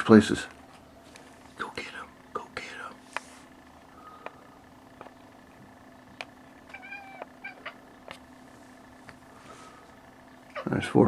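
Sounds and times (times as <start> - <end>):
cat chirp: 6.7 - 7.8
cat meowing: 6.7 - 7.8.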